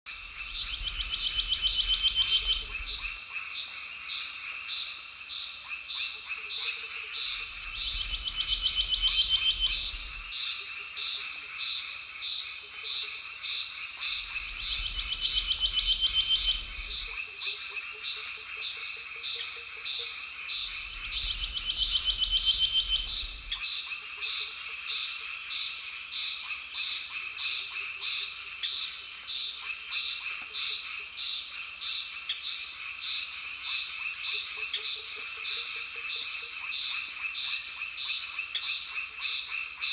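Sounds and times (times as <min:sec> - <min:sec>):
high-pitched insect drone: 0:00.1 - 0:39.9
frog trilling call: 0:00.3 - 0:03.4, 0:05.6 - 0:11.9, 0:12.5 - 0:25.0.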